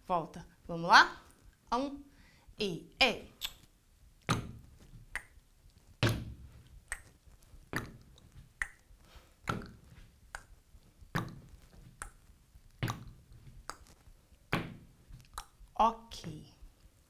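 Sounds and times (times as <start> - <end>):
gumboots thumping on a platform: 4.3 - 5.0, 6.0 - 6.7, 7.7 - 8.5, 9.5 - 10.0, 11.2 - 11.9, 12.8 - 13.6, 14.5 - 15.2.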